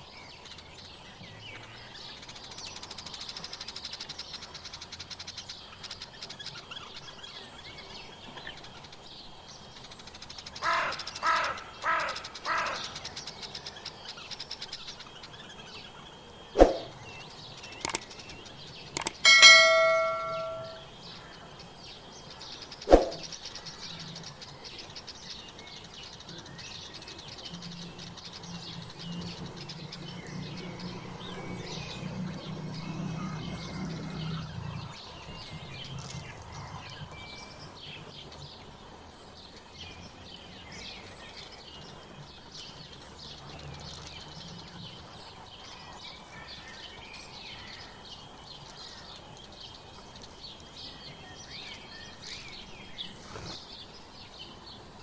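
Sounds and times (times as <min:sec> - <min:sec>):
small birds chirping: 0:00.0 - 0:55.0
sharp clicks: 0:17.7 - 0:18.3, 0:18.9 - 0:20.8
metallic bell ring: 0:19.0 - 0:20.8.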